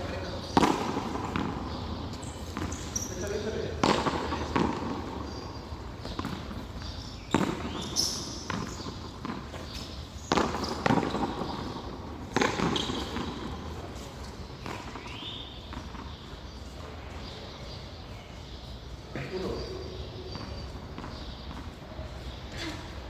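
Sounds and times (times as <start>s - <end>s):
handball slapping wall and floor: 6.0s - 13.9s.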